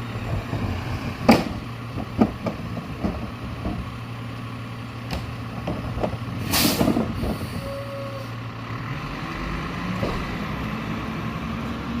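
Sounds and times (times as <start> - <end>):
garbage truck diesel engine: 0.0 - 12.0
air brake hiss: 6.4 - 8.3.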